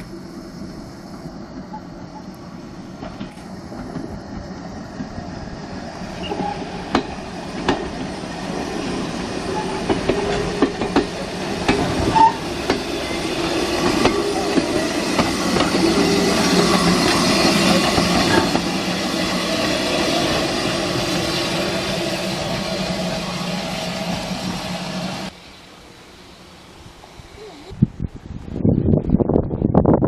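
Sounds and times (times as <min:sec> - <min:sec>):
train wheels clicking over rail joints: 0:01.6 - 0:05.3, 0:06.1 - 0:25.4.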